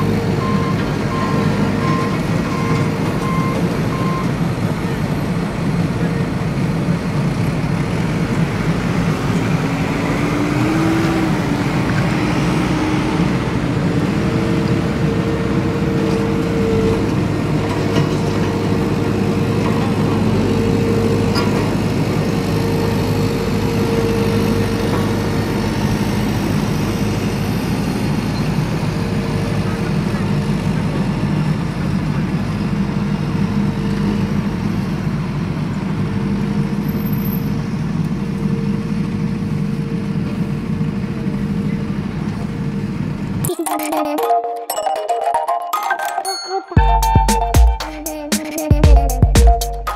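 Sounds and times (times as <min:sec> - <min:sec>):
vehicle engine rumbling: 0:00.0 - 0:36.9.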